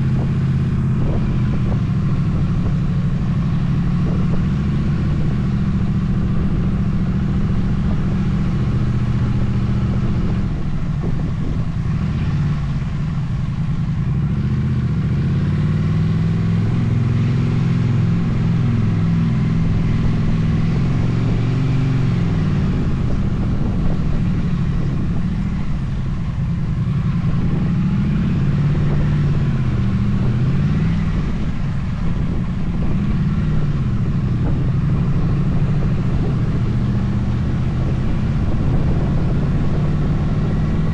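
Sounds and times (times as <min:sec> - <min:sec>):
motorcycle engine running: 0:00.0 - 0:40.9
wind noise: 0:00.0 - 0:40.9.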